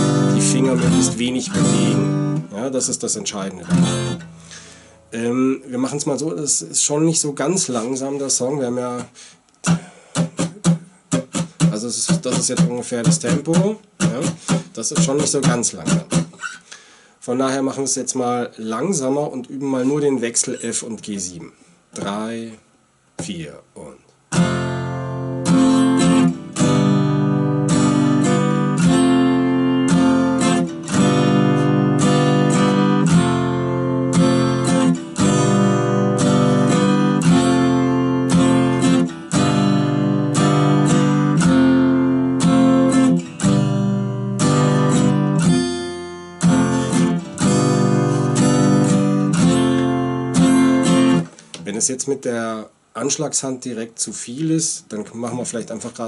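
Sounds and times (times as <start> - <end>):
acoustic guitar strumming chords: 0.0 - 6.2, 9.0 - 16.9, 24.3 - 51.5.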